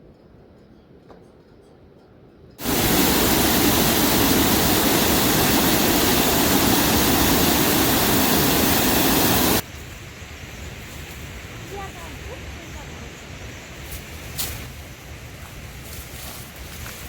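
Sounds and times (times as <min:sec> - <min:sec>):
rushing water: 0:02.6 - 0:09.6.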